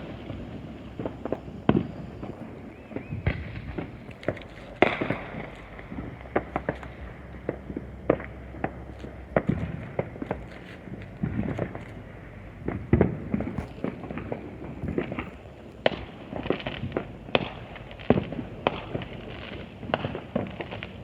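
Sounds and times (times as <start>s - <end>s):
loud firework bang: 0.0s - 11.8s, 12.6s - 21.0s
distant firecrackers popping: 0.0s - 21.0s.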